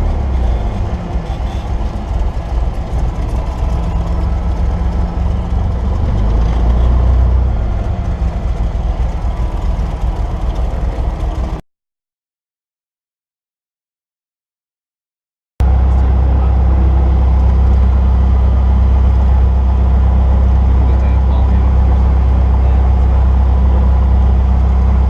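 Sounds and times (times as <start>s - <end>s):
aircraft piston engine running: 0.0s - 11.6s.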